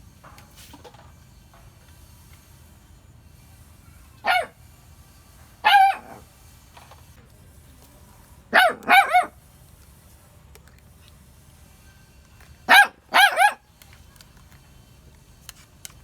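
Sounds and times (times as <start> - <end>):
dog barking: 4.2 - 4.6, 5.6 - 6.2, 8.5 - 9.4, 12.7 - 13.6.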